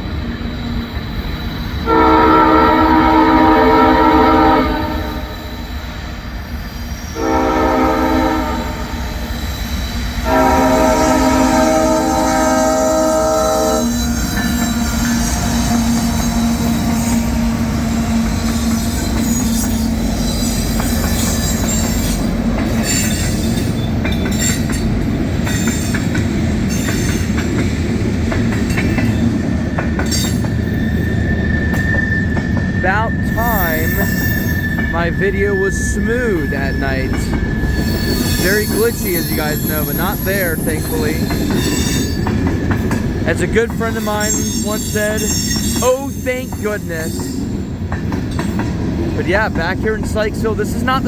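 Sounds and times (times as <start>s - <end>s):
freight train rumble: 0.0s - 51.0s
locomotive air horn blasts: 1.8s - 5.6s, 7.2s - 9.2s, 10.2s - 17.8s
wheels squealing and clicking: 13.7s - 27.7s, 28.3s - 50.9s.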